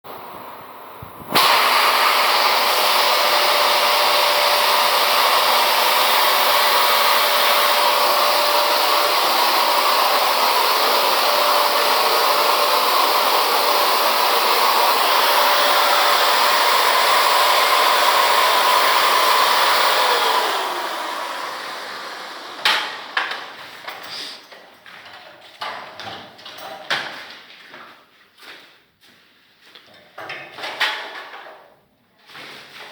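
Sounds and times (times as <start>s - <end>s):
electric blower whooshing: 0.2s - 24.4s.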